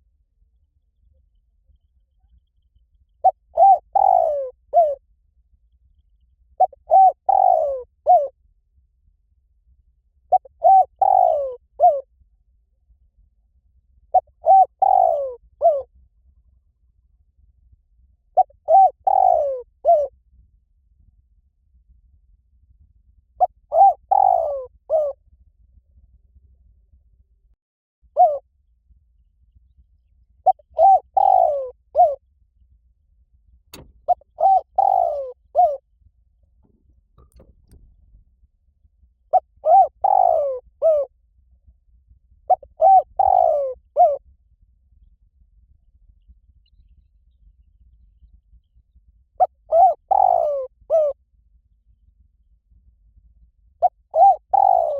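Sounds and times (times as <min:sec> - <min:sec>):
dove cooing: 0:03.2 - 0:05.0, 0:06.6 - 0:08.3, 0:10.3 - 0:12.0, 0:14.1 - 0:15.8, 0:18.4 - 0:20.1, 0:23.4 - 0:25.2, 0:28.2 - 0:28.4, 0:30.5 - 0:32.2, 0:33.8 - 0:35.8, 0:39.3 - 0:41.1, 0:42.5 - 0:44.2, 0:49.4 - 0:51.2, 0:53.8 - 0:54.9
sharp click: 0:33.8 - 0:34.0.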